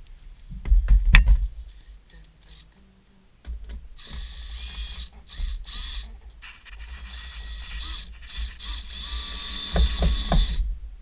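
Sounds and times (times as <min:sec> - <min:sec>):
hardware knocking against wood: 0:09.7 - 0:10.6.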